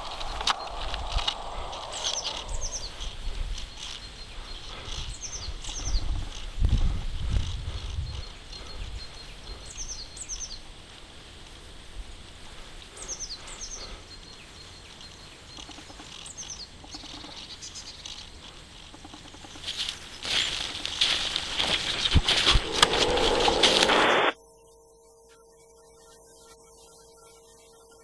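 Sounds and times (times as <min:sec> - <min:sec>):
bird singing descending notes: 0:00.0 - 0:05.9, 0:21.8 - 0:24.4
faint outdoor background: 0:00.0 - 0:28.0.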